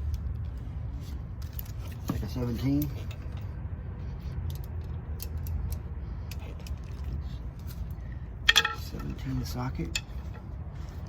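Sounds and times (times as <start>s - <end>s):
steady low rumble: 0.0s - 11.0s
metal hand tools clinking: 8.5s - 10.4s.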